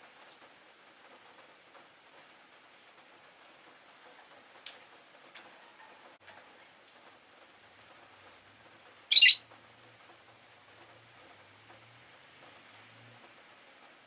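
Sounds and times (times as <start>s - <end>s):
bird high-pitched call: 9.1s - 9.4s.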